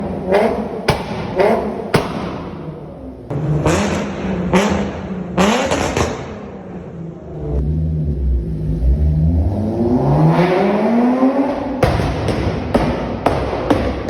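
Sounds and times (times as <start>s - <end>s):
car engine revving: 0.0s - 13.3s
exhaust cracking: 0.0s - 13.5s.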